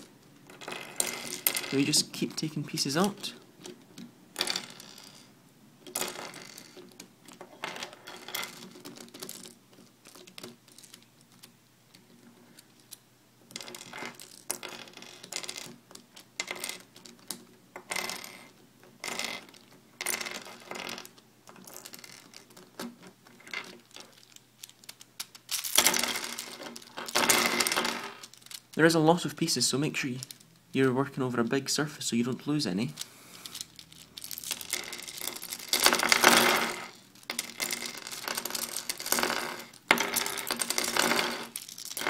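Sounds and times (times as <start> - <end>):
plastic puzzle pieces clicking: 8.2 - 18.5, 19.1 - 29.0, 32.9 - 42.0.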